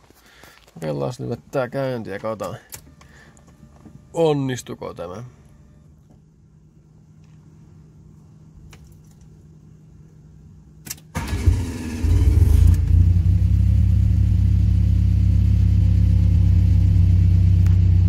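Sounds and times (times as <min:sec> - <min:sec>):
car engine starting and idling: 0:01.6 - 0:07.4, 0:10.6 - 0:18.0
starter motor cranking: 0:11.2 - 0:12.9.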